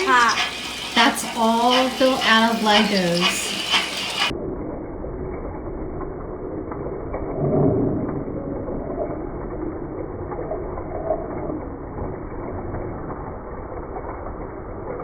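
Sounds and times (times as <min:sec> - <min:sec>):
toy train motor and gears whirring: 0:00.0 - 0:04.3.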